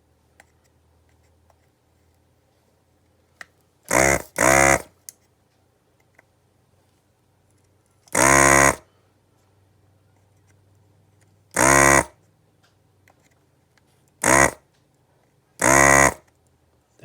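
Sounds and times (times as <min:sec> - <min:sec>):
vacuum pump buzzing: 0:03.9 - 0:05.0, 0:08.1 - 0:08.9, 0:11.6 - 0:12.2, 0:14.2 - 0:14.6, 0:15.6 - 0:16.3.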